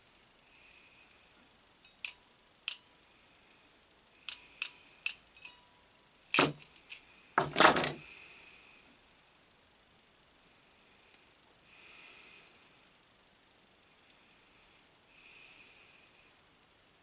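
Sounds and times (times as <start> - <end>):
metallic tool clicks and snips: 1.9 - 2.9, 4.3 - 5.6
tools rattling scrapes: 6.3 - 8.0.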